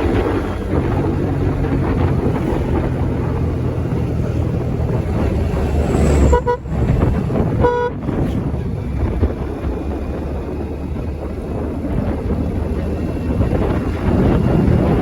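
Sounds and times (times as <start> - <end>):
road traffic rumble: 0.0 - 15.0
wind buffeting microphone: 0.0 - 15.0
vehicle horn toot: 6.2 - 6.8, 7.6 - 8.1.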